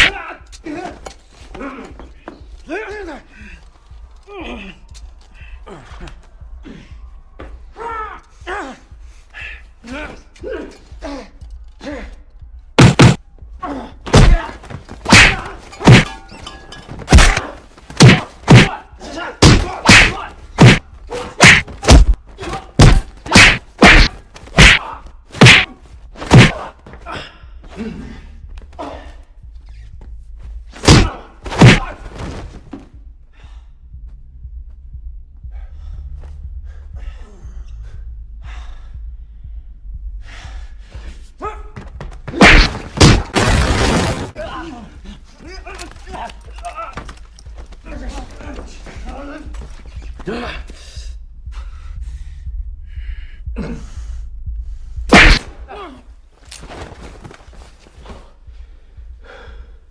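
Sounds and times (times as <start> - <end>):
punch and hit sound effects: 12.8 - 13.2, 14.1 - 14.4, 15.1 - 16.2, 17.1 - 17.4, 18.0 - 18.8, 19.4 - 20.8, 21.4 - 22.2, 22.8 - 24.8, 25.4 - 26.6, 30.8 - 31.9, 42.3 - 44.4, 55.1 - 55.6
heavy gasping breaths: 35.4 - 41.4, 50.4 - 55.1, 58.2 - 59.9.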